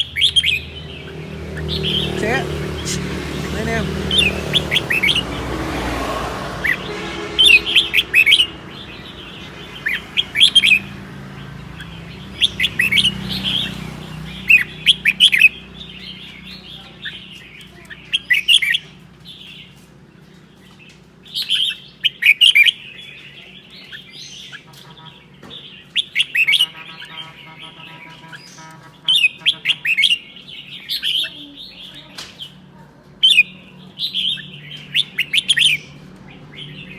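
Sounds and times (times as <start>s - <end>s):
bird singing: 0.0s - 5.7s, 6.5s - 19.8s, 33.2s - 36.9s.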